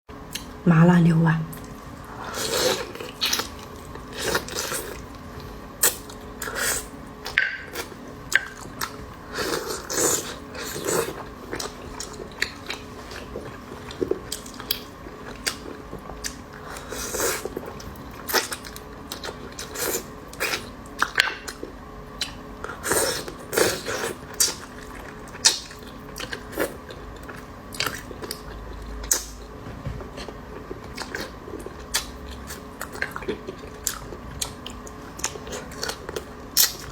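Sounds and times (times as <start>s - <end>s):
person chewing with wet mouth clicks: 0.3s - 0.5s.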